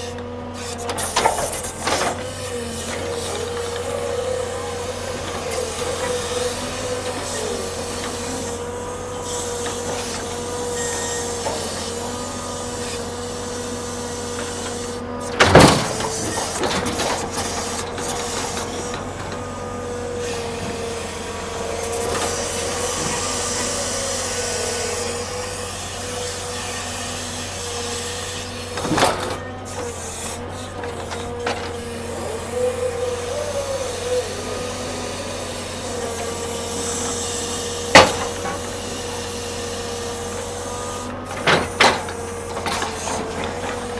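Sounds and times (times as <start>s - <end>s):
heavy machinery whining: 0.0s - 43.9s
loud clunks of logs: 13.9s - 21.0s, 35.7s - 38.9s.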